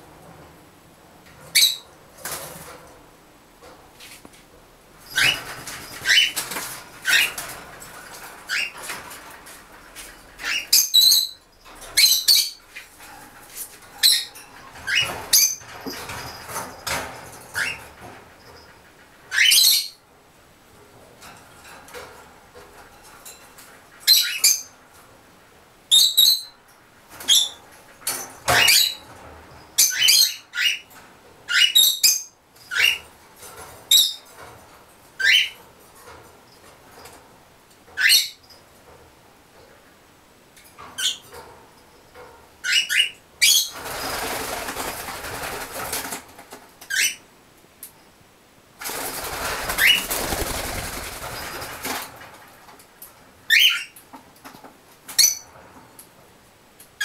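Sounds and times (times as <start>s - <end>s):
wing flapping: 43.7s - 46.6s, 48.8s - 52.7s.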